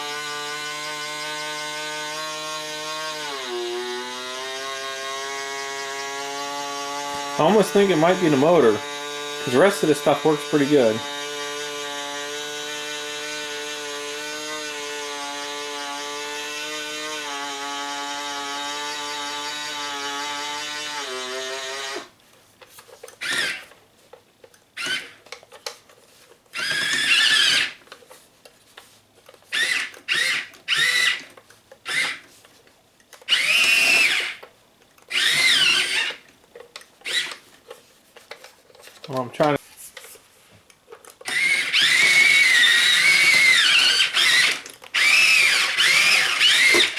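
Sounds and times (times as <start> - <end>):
small electric motor whining: 0.0 - 22.1, 26.6 - 27.8, 29.5 - 31.3, 33.3 - 34.4, 35.1 - 36.2, 37.0 - 37.4, 41.3 - 46.9.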